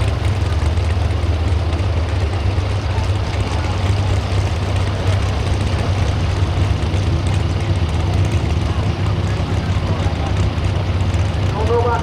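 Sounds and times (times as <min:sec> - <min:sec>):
truck engine roaring: 0:00.0 - 0:12.0.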